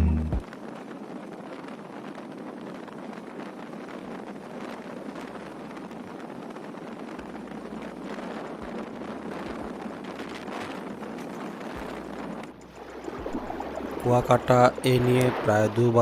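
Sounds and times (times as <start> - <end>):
wind rushing on microphone: 0.3 - 16.0
road noise: 7.0 - 16.0.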